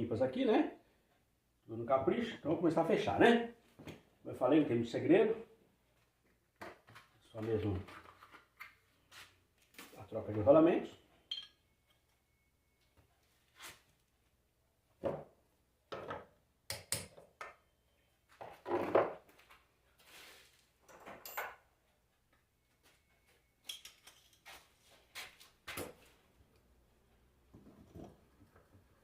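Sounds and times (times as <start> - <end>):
metal parts knocking and clinking: 23.6 - 24.4.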